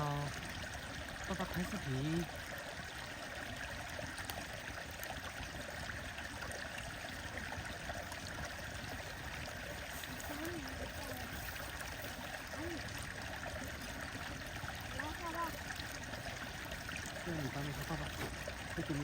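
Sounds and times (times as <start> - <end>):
stream running: 0.0 - 19.0
bonfire crackles: 1.9 - 19.0.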